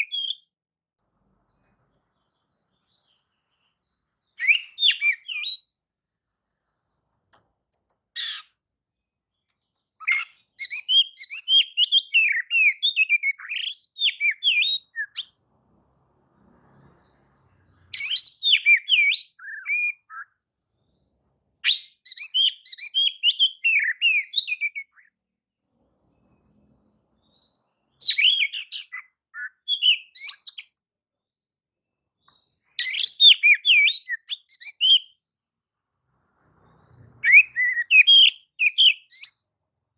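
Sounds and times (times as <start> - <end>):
bird singing whistled song: 0.0 - 0.5, 3.9 - 5.8, 10.0 - 15.4, 17.4 - 20.4, 21.6 - 25.2, 27.0 - 30.8, 32.2 - 35.2, 37.2 - 39.5.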